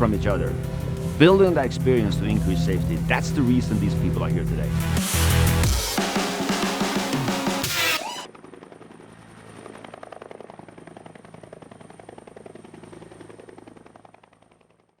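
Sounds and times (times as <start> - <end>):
low engine hum: 0.0 - 5.7
high turbine whine: 0.0 - 9.9
helicopter rotor chopping: 0.0 - 14.8.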